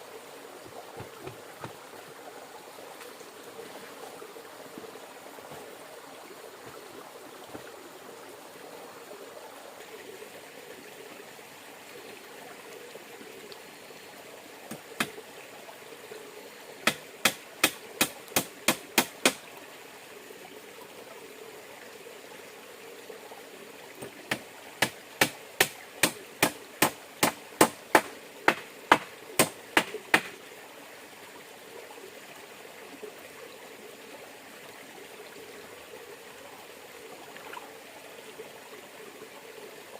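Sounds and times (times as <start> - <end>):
river water flowing: 0.0 - 39.9
sharp knocks: 24.3 - 30.3.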